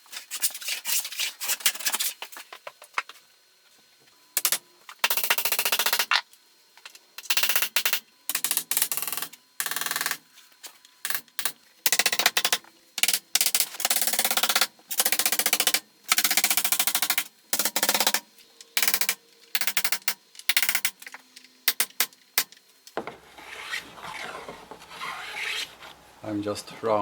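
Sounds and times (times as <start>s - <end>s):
rasp filing wood: 23.3s - 26.0s.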